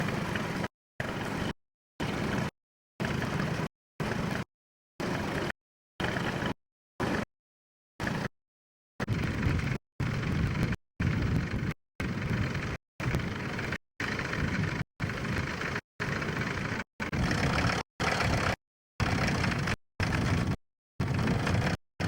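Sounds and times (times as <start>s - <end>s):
tractor engine running: 9.0s - 21.8s.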